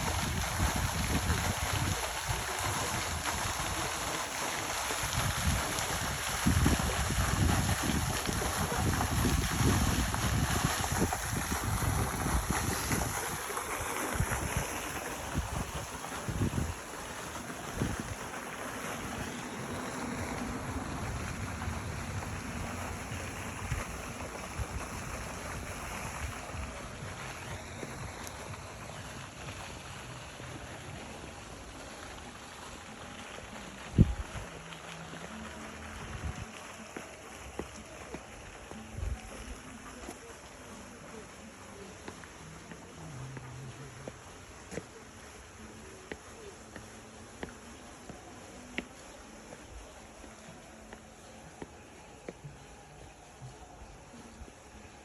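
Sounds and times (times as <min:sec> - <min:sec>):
wind buffeting microphone: 0:00.0 - 0:29.6
steady rushing noise: 0:00.0 - 0:32.5
steady outdoor hiss: 0:00.0 - 0:55.0.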